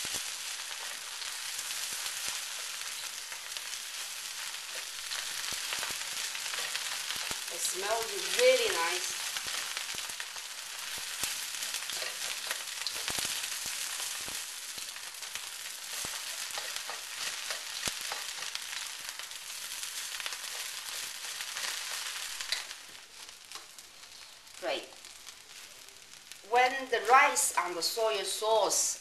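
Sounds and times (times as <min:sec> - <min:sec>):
rice sizzling in a wok: 0:00.0 - 0:29.0
spatula clicks and scrapes: 0:11.9 - 0:13.4, 0:15.9 - 0:18.6.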